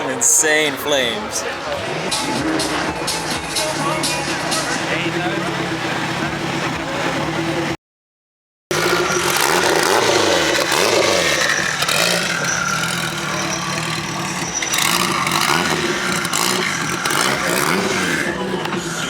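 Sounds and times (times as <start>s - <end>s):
car engine revving: 1.8s - 7.8s, 8.7s - 19.0s.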